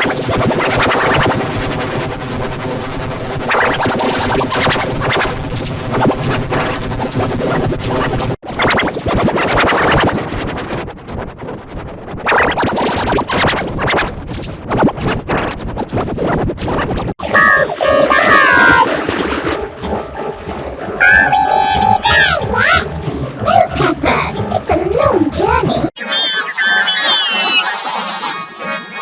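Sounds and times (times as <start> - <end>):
distorted cartoon soundtrack: 17.2 - 19.1, 19.9 - 29.0.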